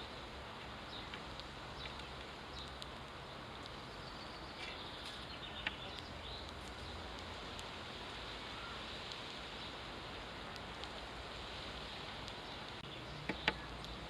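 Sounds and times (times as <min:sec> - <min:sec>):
steady background noise: 0:00.0 - 0:14.0
sparrows chirping: 0:00.8 - 0:07.2, 0:11.9 - 0:14.0.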